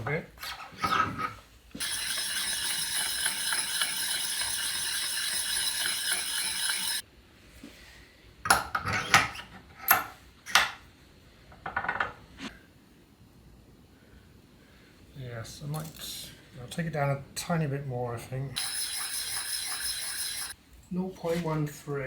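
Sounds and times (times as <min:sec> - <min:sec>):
hand sanding metal: 0:01.8 - 0:07.0, 0:18.6 - 0:20.6
metal clinks and knocks: 0:01.8 - 0:07.0.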